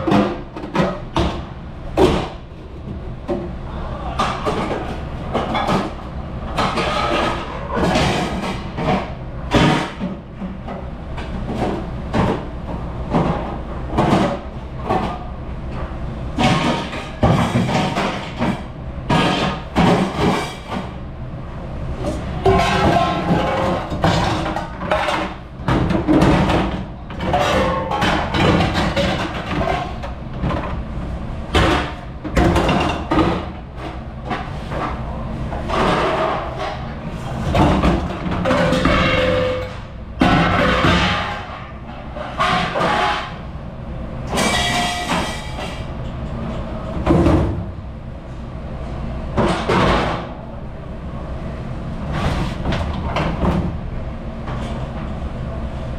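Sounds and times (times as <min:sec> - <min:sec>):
dishes and utensils clattering: 0:06.6 - 0:10.1, 0:22.4 - 0:30.6, 0:35.6 - 0:43.4, 0:44.3 - 0:45.9.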